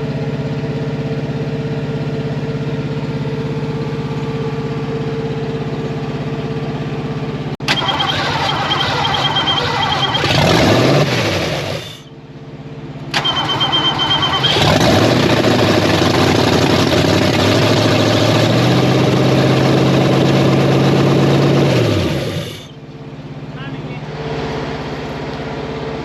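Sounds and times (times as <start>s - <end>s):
car engine high uneven idle: 0.0s - 26.0s
starter motor whine: 7.6s - 12.1s, 13.0s - 23.0s.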